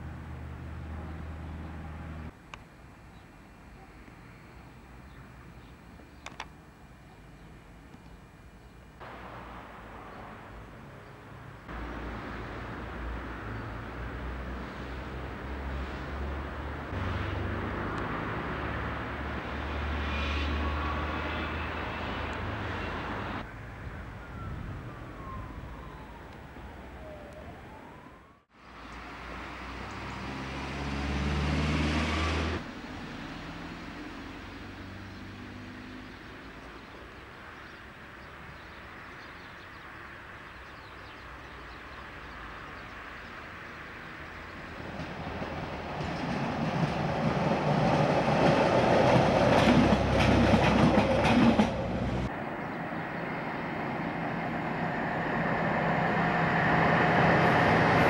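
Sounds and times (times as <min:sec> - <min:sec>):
diesel locomotive approaching: 0:00.0 - 0:07.6, 0:08.6 - 0:58.0
diesel train passing: 0:08.9 - 0:27.2, 0:27.8 - 0:58.0
wheels clicking on track: 0:44.8 - 0:52.3.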